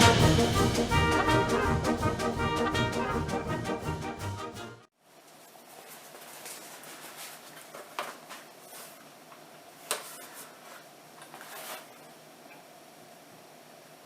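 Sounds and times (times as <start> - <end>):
orchestral music with brass: 0.0 - 4.9.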